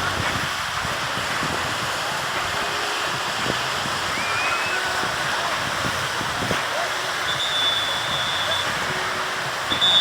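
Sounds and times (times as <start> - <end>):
wind on microphone: 0.0 - 10.0
faint high whistle-like tone: 4.1 - 4.9, 7.2 - 8.7, 9.7 - 10.0.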